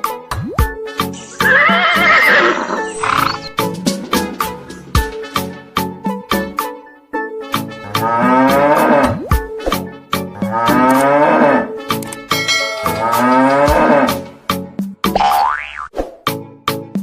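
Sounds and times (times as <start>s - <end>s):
background music with steady beat: 0.0s - 15.2s, 16.3s - 17.0s
cow mooing: 7.9s - 9.1s, 10.4s - 11.8s, 13.0s - 14.3s.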